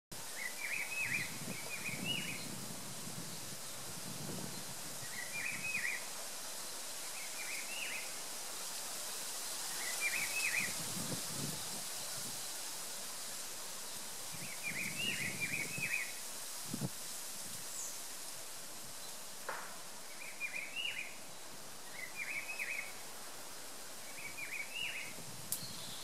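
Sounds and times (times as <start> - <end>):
steady high outdoor hiss: 0.1 - 26.0.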